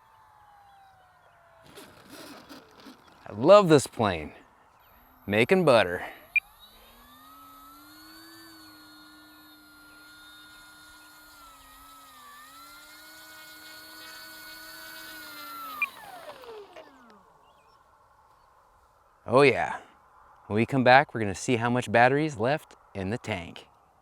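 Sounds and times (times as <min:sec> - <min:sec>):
model plane electric motor whine: 0:00.0 - 0:19.2.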